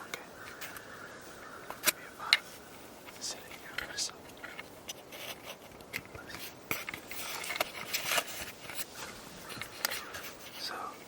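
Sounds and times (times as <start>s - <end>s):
handling scrapes and clicks: 3.1s - 10.6s.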